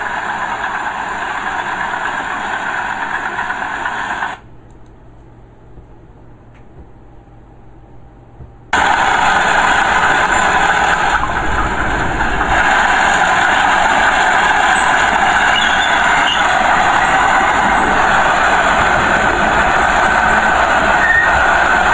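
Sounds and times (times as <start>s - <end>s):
diesel engine running: 8.8s - 21.9s.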